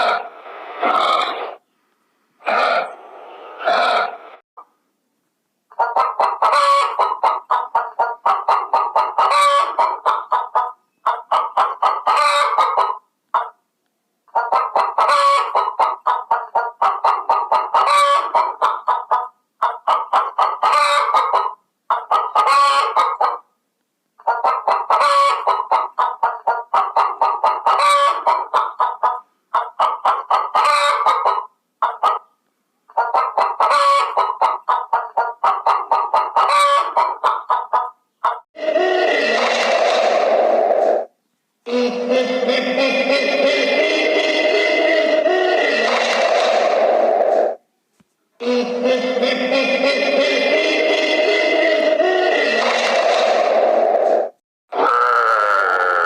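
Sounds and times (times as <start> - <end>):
chickens clucking: 5.7 - 13.6, 14.3 - 23.5, 24.2 - 41.1, 43.1 - 47.6.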